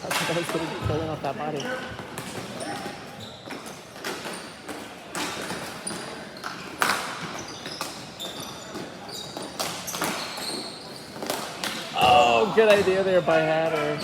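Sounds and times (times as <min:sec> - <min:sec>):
sneakers squeaking on floor: 0:00.0 - 0:14.0.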